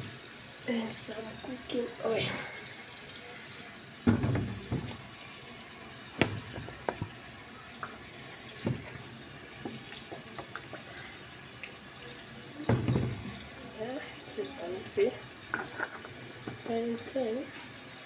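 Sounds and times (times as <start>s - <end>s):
oil pouring into pot: 1.4s - 17.1s
cookware knocks and clinks: 12.7s - 13.4s.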